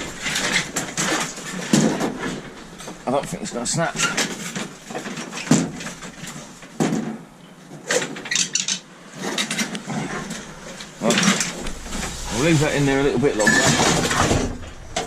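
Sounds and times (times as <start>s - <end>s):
scrap metal clanking: 9.2s - 15.0s.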